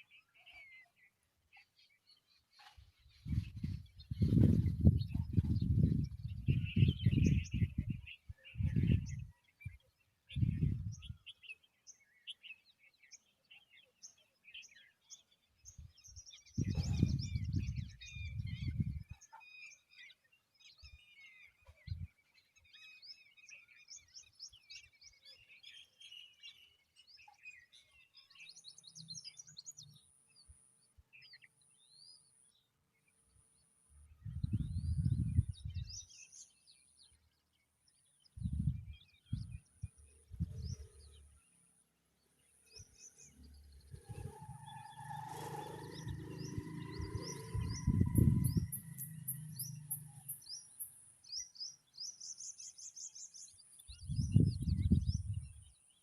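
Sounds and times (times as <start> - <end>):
birds chirping: 0.0 - 56.0
low rumbling wind gusts: 3.2 - 9.3, 10.3 - 11.2, 16.6 - 19.1, 34.1 - 36.0, 38.3 - 41.2, 43.7 - 49.9, 54.0 - 55.7.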